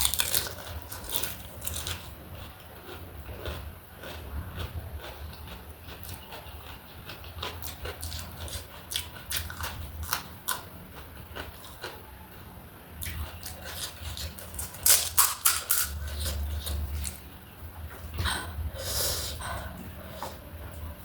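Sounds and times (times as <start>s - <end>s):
crunching while chewing: 0.0s - 17.3s
low hum: 12.0s - 21.0s.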